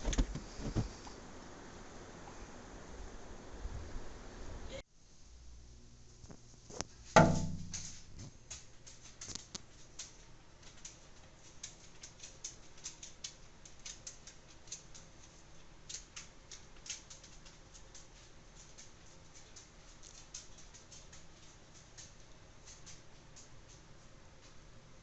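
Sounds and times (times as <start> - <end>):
light irregular ticks and clicks: 6.2 - 25.0
sharp ringing knock: 7.2 - 8.0.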